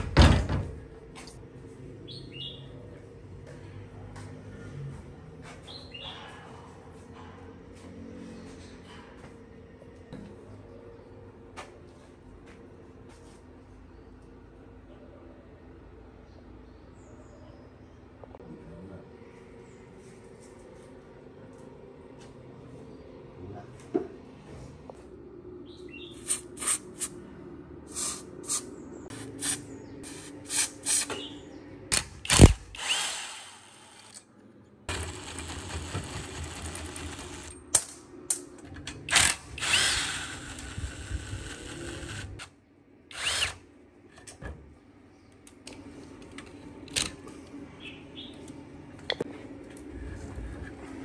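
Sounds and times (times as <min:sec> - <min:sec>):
power tool running: 0:31.9 - 0:34.2, 0:34.9 - 0:37.5, 0:39.1 - 0:42.5, 0:43.1 - 0:43.6.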